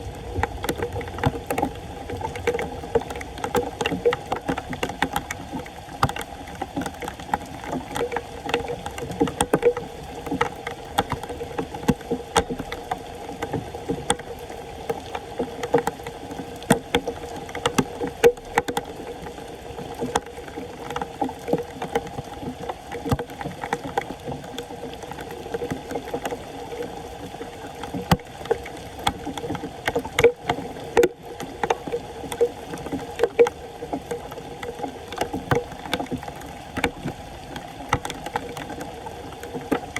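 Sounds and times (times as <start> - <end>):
floodwater sloshing and splashing: 0.0 - 39.9
small knocks and scrapes: 27.8 - 39.9.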